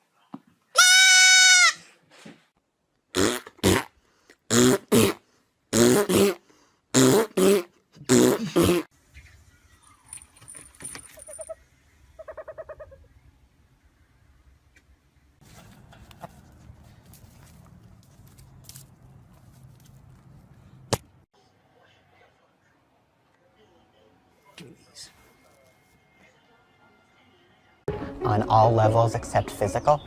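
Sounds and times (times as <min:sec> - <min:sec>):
short harsh animal calls: 0:00.8 - 0:01.9
quavering animal call: 0:11.2 - 0:13.2.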